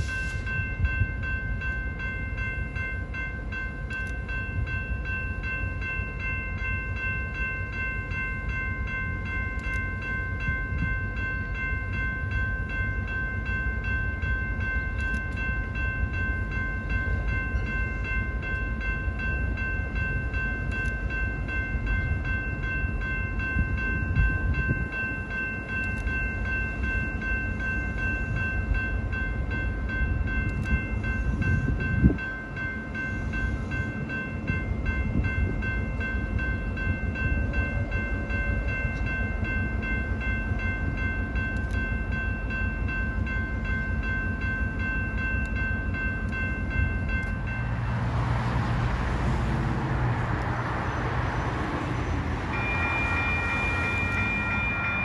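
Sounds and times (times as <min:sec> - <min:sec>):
train rumble: 0:00.0 - 0:55.0
wheel and rail noise: 0:00.0 - 0:55.0
high-pitched ringing tone: 0:50.8 - 0:55.0.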